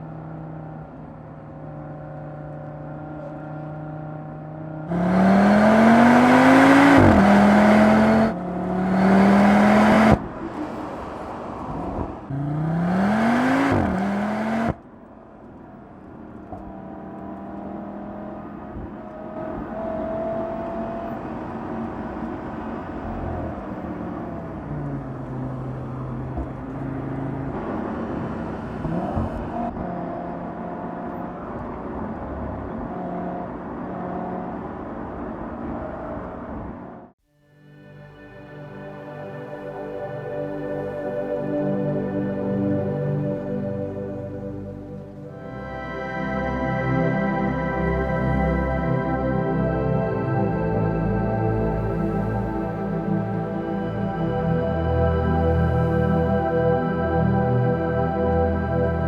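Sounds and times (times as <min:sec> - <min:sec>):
car engine running steadily: 0:00.0 - 0:11.0, 0:11.7 - 0:31.9, 0:46.5 - 0:59.0
car engine accelerating: 0:00.0 - 0:37.1, 0:38.8 - 0:59.0.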